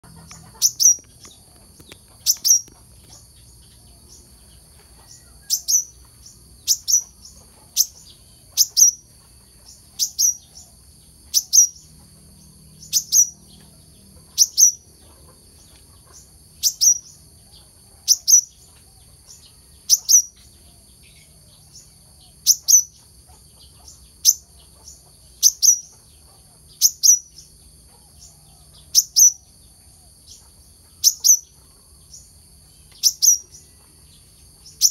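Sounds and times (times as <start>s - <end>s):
bird chirping high: 0.0s - 4.3s, 5.0s - 10.7s, 11.3s - 12.0s, 12.8s - 17.2s, 19.3s - 23.0s, 23.8s - 26.1s, 30.3s - 31.6s, 32.8s - 33.8s, 34.6s - 34.9s.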